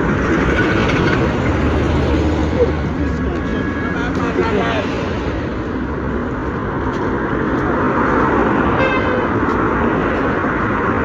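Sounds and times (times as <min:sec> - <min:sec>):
road traffic noise: 0:00.0 - 0:11.0
vehicle horn toot: 0:08.8 - 0:09.4.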